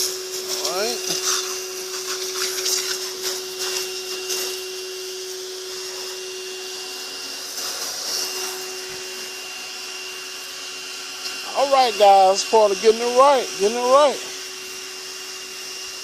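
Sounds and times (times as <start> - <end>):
water jet spraying hiss: 0.0 - 4.6, 11.2 - 14.4
pressure washer whine: 0.0 - 16.0.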